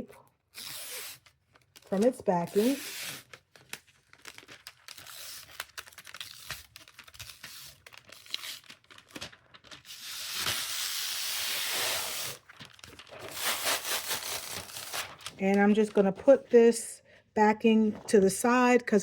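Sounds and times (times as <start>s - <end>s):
plastic tape crinkling: 0.4s - 11.2s, 11.9s - 16.0s.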